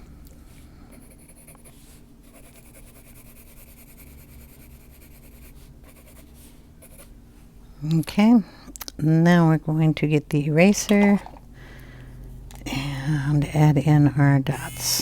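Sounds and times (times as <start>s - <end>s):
faint steady hum: 0.0s - 15.0s
pencil scratching on paper: 1.0s - 7.1s.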